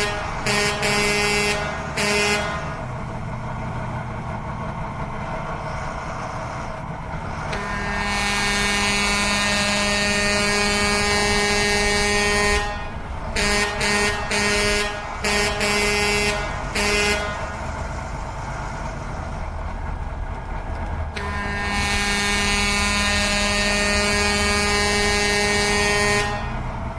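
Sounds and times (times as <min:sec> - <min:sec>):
vehicle horn blasts and toots: 0:00.0 - 0:02.7, 0:07.5 - 0:17.4, 0:21.2 - 0:26.6
low engine rumble: 0:00.0 - 0:26.9.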